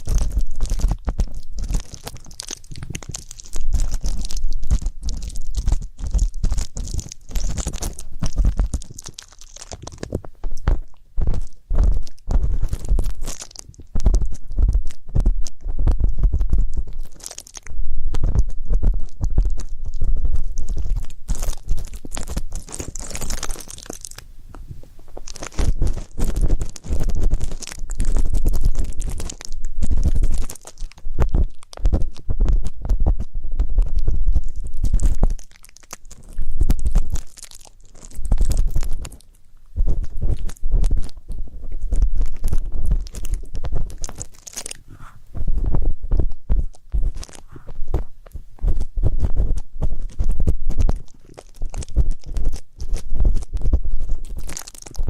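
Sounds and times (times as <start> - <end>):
ear pick scratching microphone: 0.0 - 55.0
deep low thumps: 10.2 - 17.1, 17.7 - 23.5, 24.5 - 35.5, 45.1 - 54.7.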